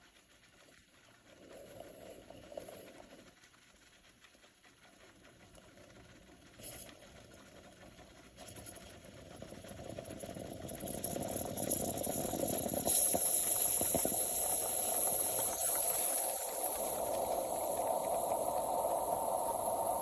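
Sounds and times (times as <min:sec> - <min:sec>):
espresso machine steam hissing: 0:10.1 - 0:20.0.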